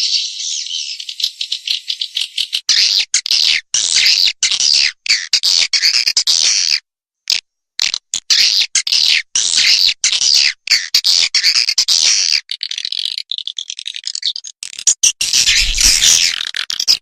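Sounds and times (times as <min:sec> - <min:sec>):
recorded swiftlet chirps: 0:15.2 - 0:16.4.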